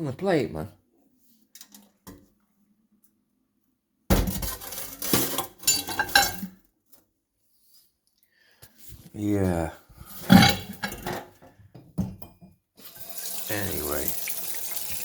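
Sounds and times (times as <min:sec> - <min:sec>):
crockery clattering: 0:04.1 - 0:06.5, 0:10.2 - 0:11.4.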